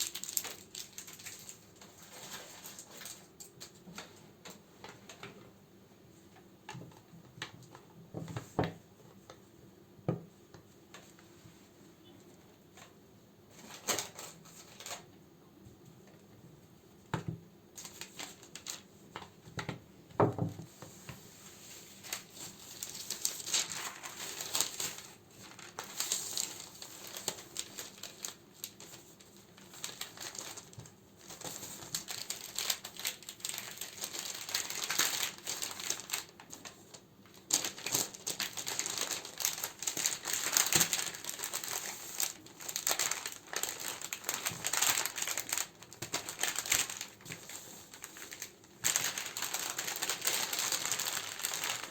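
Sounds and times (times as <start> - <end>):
packaging crinkling and rustling: 0.0 - 5.6, 12.1 - 15.2, 17.1 - 51.9.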